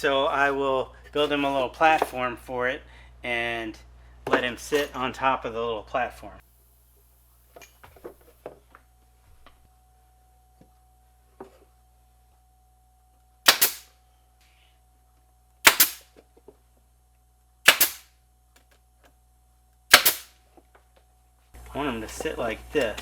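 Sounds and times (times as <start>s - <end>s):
nail gun firing: 13.5s - 13.9s, 15.6s - 16.1s, 17.7s - 18.1s, 19.9s - 20.4s.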